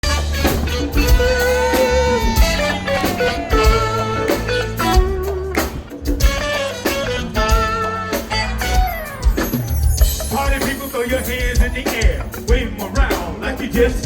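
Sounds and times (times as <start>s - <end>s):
band playing instrumental: 0.0s - 14.0s.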